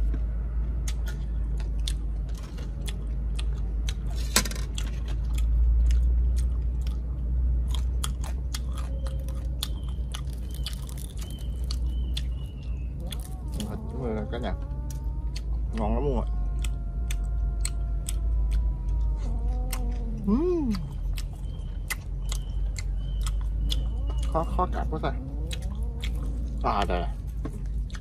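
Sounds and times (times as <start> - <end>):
crunchy chewing: 0.0 - 28.0
low rumble: 0.0 - 28.0.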